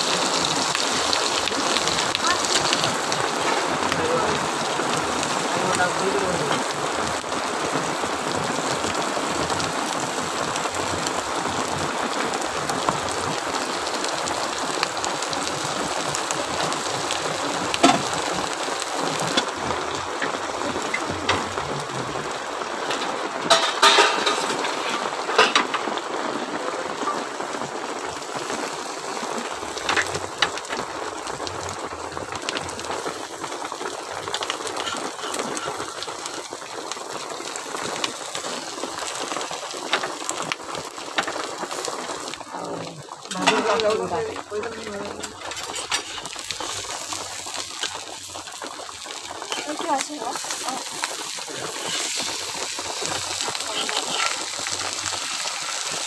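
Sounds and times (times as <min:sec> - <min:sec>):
fish roe sizzling in hot oil: 0:00.0 - 0:56.0
metal spatula scraping a pan: 0:45.5 - 0:46.4.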